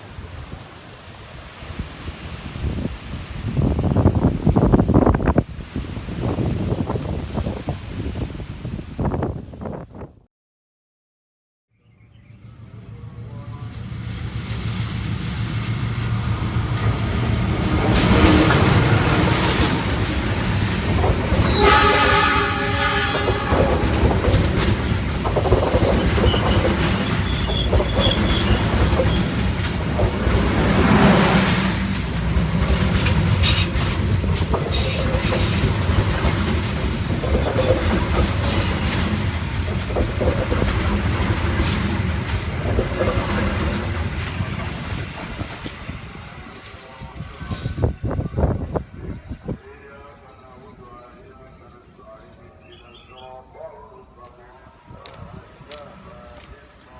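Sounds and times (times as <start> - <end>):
train wheels clattering: 13.5 - 48.6
train horn: 17.6 - 19.8, 21.3 - 24.7.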